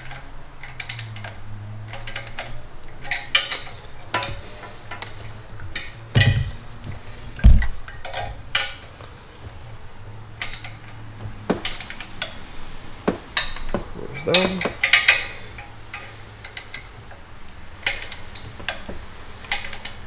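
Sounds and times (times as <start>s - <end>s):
dull thump: 1.9s - 9.6s.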